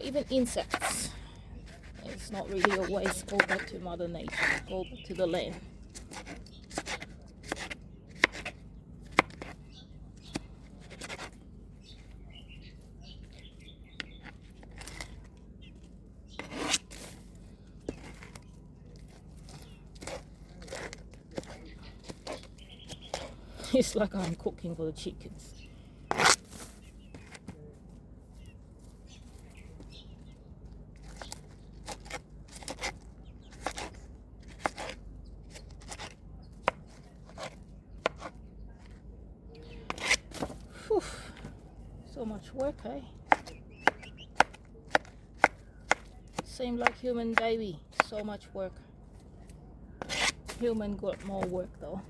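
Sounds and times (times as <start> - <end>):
knife cutting melon: 1.6 - 12.1, 16.3 - 17.2, 17.8 - 23.4, 26.1 - 27.5, 31.0 - 39.0, 39.8 - 40.7, 42.6 - 48.3, 49.4 - 51.6.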